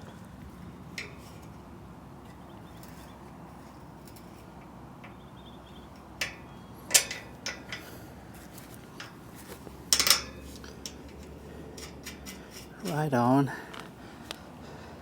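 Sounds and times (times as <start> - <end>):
metal clinks and knocks of bolts: 6.0 - 7.9, 9.9 - 12.7.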